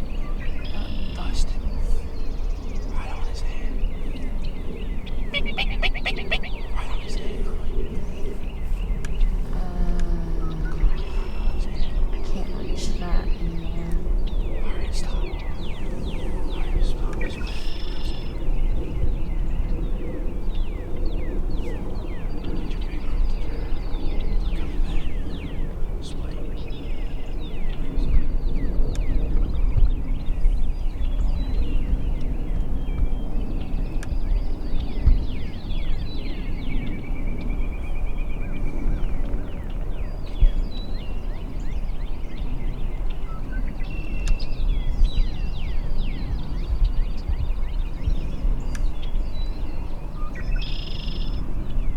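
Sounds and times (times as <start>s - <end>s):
small birds singing: 0.0s - 51.9s
steady low rumble: 0.0s - 51.9s.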